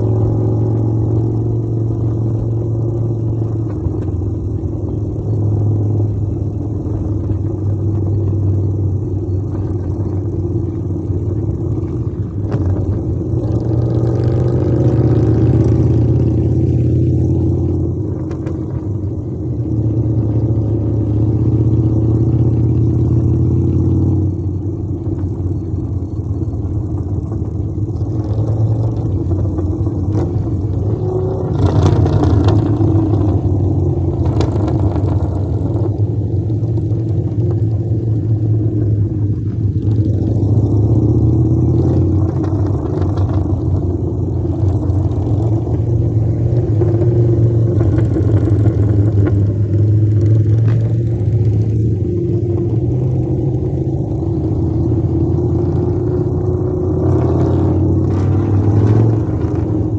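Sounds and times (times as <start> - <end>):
motorcycle engine running: 0.0 - 59.9
rushes of noise: 0.0 - 59.9.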